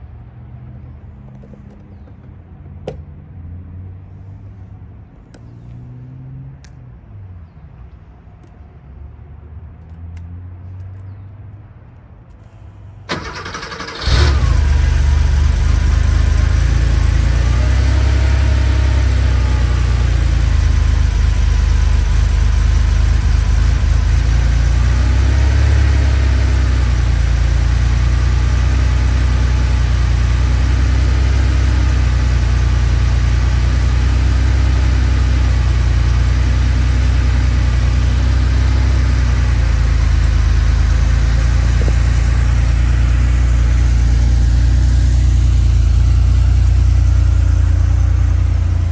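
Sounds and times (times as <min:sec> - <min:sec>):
engine cranking: 0:13.1 - 0:15.7
car engine fast idle: 0:13.1 - 0:24.8.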